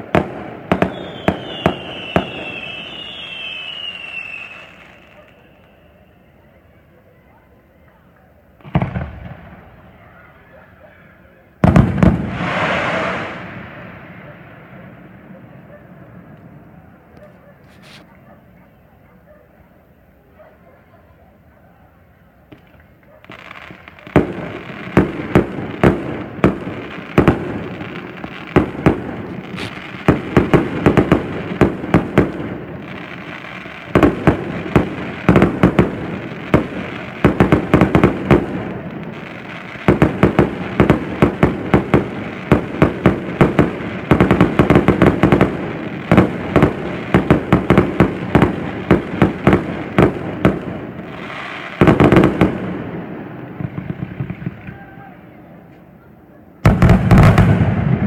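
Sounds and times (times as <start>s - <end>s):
fireworks bangs: 0.0s - 6.1s, 7.8s - 10.5s, 11.4s - 18.2s, 22.5s - 55.9s, 56.6s - 58.0s.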